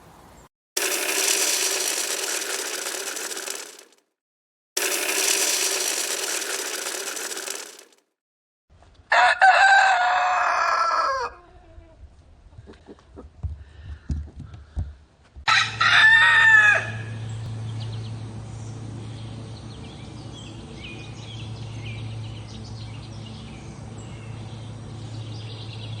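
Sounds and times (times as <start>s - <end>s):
rooster crowing: 9.1s - 11.5s, 15.5s - 17.1s.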